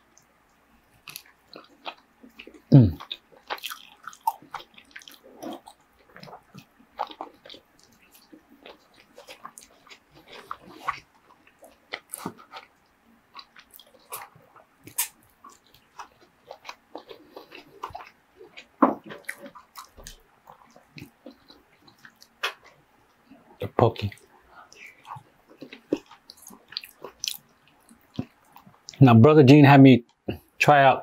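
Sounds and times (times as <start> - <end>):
wet chewing: 0.9 - 29.0
lip smacking and clicks: 13.4 - 22.7.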